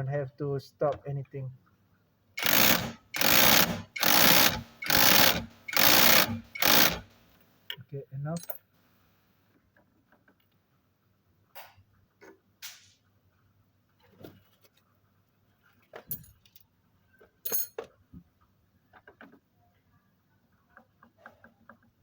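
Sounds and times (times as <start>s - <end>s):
metallic clinks of tools: 8.4s - 8.7s, 17.4s - 17.8s.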